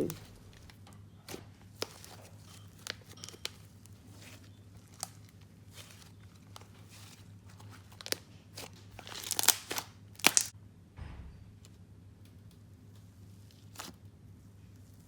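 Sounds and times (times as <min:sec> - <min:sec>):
slime crackles and pops: 0:07.9 - 0:10.5.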